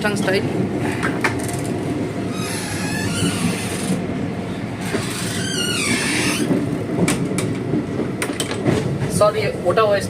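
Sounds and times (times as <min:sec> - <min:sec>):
train coach rumble: 0:00.0 - 0:10.0
high squealing: 0:02.3 - 0:04.0, 0:05.0 - 0:06.5.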